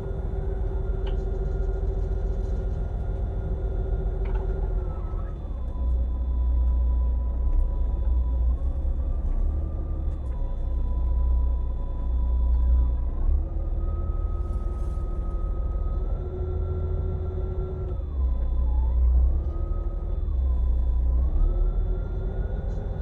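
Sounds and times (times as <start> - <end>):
boat engine rumbling: 0.0 - 4.8.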